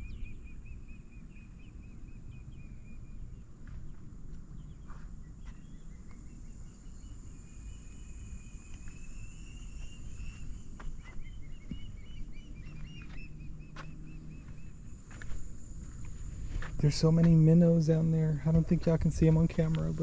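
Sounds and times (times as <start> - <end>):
bird chirping: 0.0 - 20.0
high-pitched insect drone: 6.0 - 13.1, 13.7 - 20.0
wind rumble on microphone: 14.2 - 20.0.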